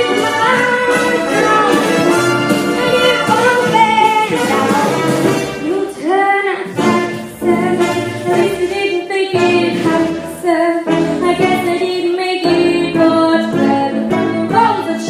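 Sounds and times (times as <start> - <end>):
woman singing with music: 0.0 - 15.0.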